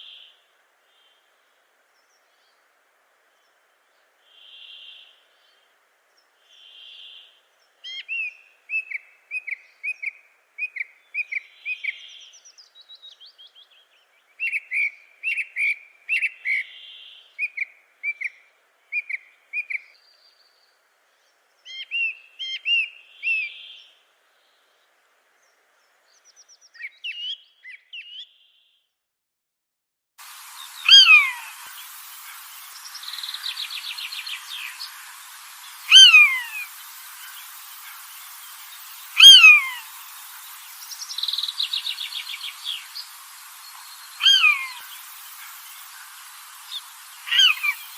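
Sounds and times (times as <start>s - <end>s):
steady hiss: 0.0s - 26.7s, 30.2s - 47.9s
birds chirping: 30.3s - 47.9s
loud falling bird call: 30.4s - 47.9s
soft whistled bird notes: 30.5s - 47.9s.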